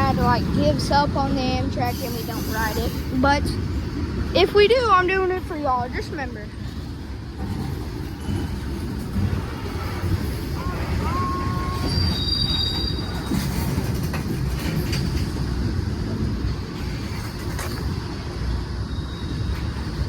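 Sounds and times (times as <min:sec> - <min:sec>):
freight train rumbling: 0:00.0 - 0:20.0
wheels clacking over rail joints: 0:00.0 - 0:20.0
train wheels squealing: 0:01.8 - 0:03.2, 0:09.6 - 0:15.4, 0:16.8 - 0:20.0.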